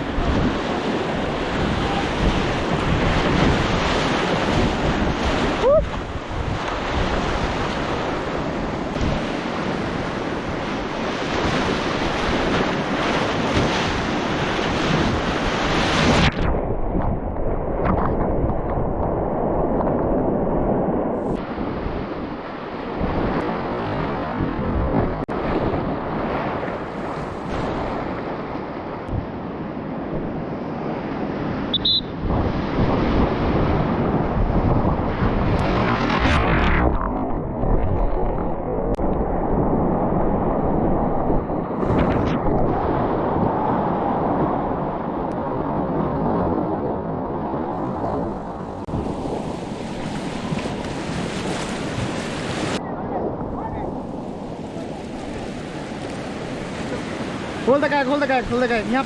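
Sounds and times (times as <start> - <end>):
wind buffeting microphone: 0.0 - 59.0
brief high beep: 31.7 - 32.2
fast river rushing: 53.9 - 59.0.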